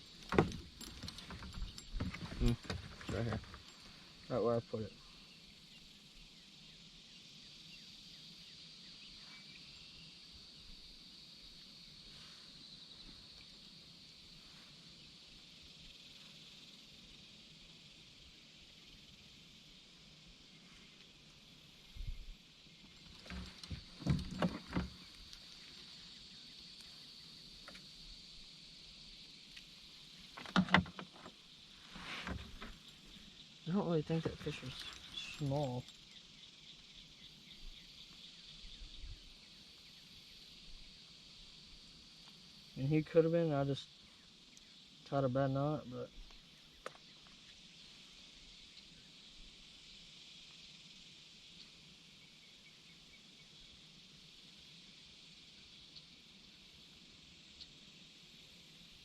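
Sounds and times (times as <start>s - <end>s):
high-pitched insect drone: 0.0s - 59.0s
steady high hiss: 0.0s - 59.0s
gear knocking against boat hull: 0.2s - 3.6s.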